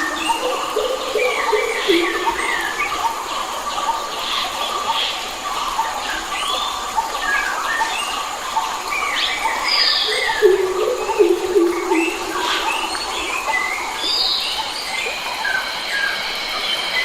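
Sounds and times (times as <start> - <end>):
steady hiss: 0.0 - 17.0
birds chirping and whistling: 9.0 - 17.0.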